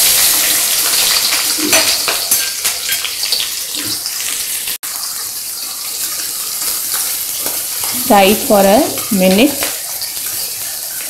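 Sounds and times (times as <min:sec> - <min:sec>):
crackles of frying: 0:00.0 - 0:11.0
garlic and onions sizzling in oil: 0:00.0 - 0:11.0.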